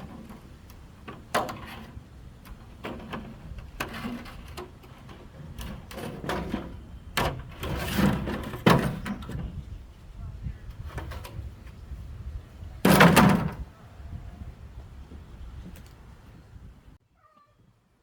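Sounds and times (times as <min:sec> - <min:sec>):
scraping: 0:00.0 - 0:09.8, 0:12.8 - 0:13.7.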